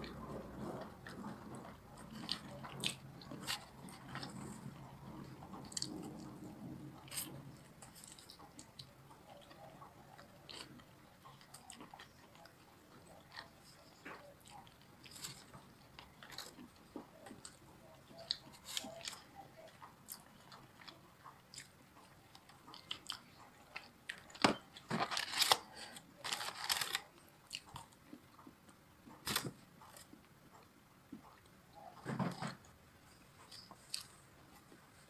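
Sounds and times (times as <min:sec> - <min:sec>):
crunchy bites and chewing: 0:22.4 - 0:28.5.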